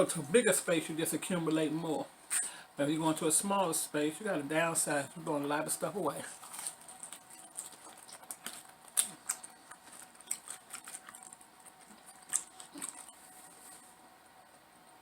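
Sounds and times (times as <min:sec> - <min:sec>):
chewing with crisp crunches: 0:06.3 - 0:13.8.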